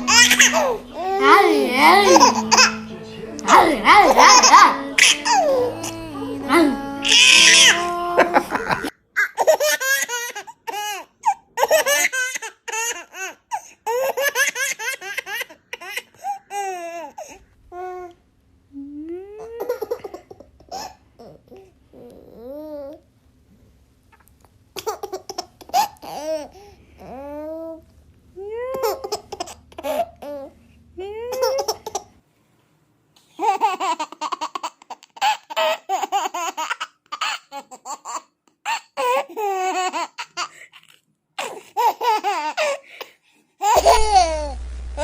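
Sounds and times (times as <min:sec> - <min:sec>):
steady hum: 0:00.0 - 0:08.9, 0:43.7 - 0:45.0
babies laughing: 0:00.0 - 0:11.0.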